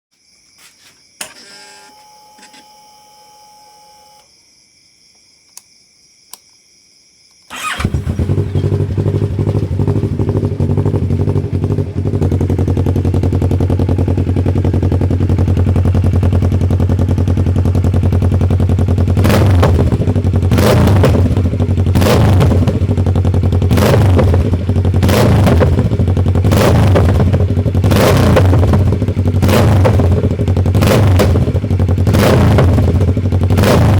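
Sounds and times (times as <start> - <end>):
motorcycle engine idling: 7.5 - 33.6
exhaust backfires: 7.5 - 33.9.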